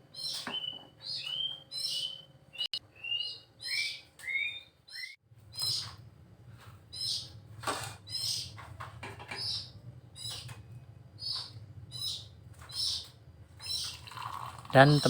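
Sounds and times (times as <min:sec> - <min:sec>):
small bird chirping: 0:00.1 - 0:06.1, 0:06.8 - 0:07.4, 0:08.0 - 0:15.0
steady low hum: 0:05.3 - 0:15.0.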